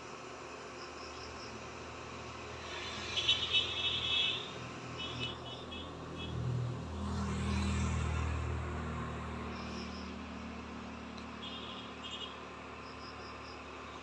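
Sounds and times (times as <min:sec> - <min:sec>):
insects chirping in bursts: 0:00.0 - 0:06.3, 0:07.1 - 0:14.0
passing vehicle rumble: 0:05.9 - 0:11.2.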